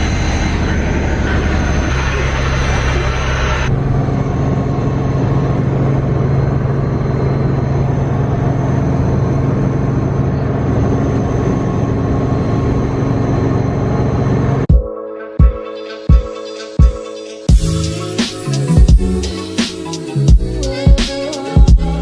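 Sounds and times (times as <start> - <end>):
helicopter engine and rotor drone: 0.0 - 14.7.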